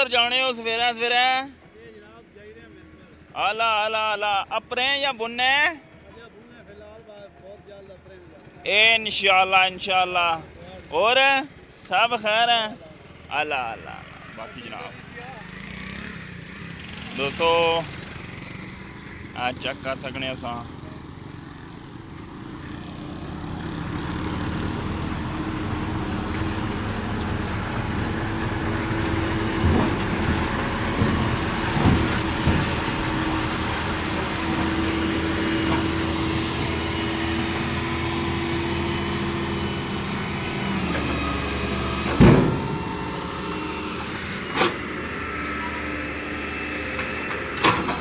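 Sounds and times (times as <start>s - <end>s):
vehicle engine running: 7.9s - 48.0s
loud thump: 42.0s - 43.3s.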